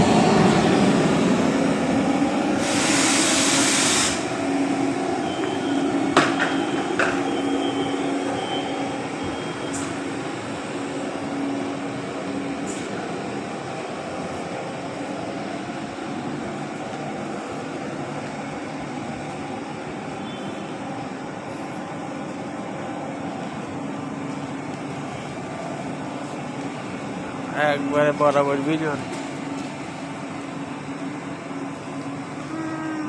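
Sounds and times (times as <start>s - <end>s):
train loud hiss: 0.0s - 11.0s.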